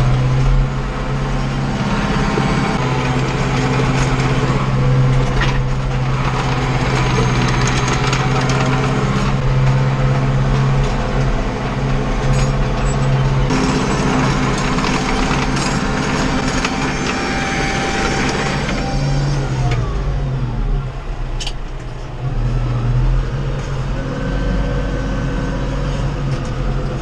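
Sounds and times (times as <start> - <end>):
tractor diesel engine running: 0.0 - 27.0
mechanical clatter: 12.2 - 19.9.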